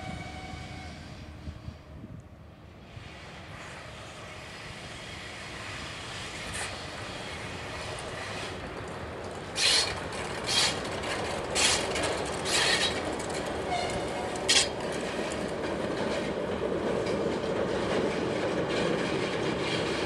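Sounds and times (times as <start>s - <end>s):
electric train approaching: 0.0s - 20.0s
sharp wheel-on-rail bursts: 9.5s - 10.9s, 11.6s - 13.0s.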